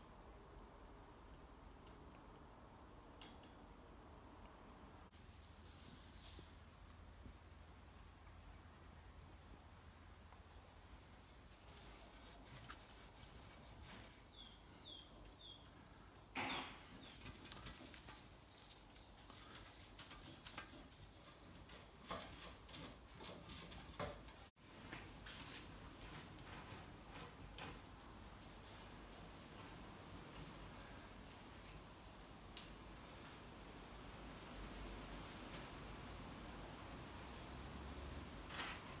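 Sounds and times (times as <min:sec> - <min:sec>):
small bird chirping: 0:13.6 - 0:21.7.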